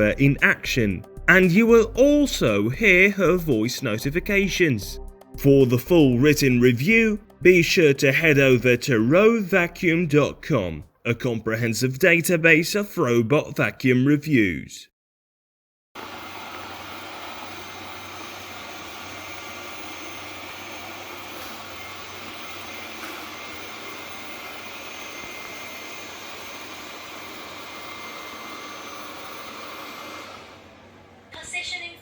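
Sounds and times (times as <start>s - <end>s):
robot vacuum whirring: 16.0s - 32.0s.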